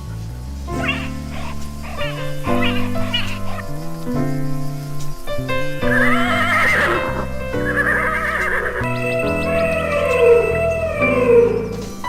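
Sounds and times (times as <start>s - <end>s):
cartoon background music: 0.0s - 12.0s
horse whinny: 0.8s - 3.6s, 5.8s - 11.8s.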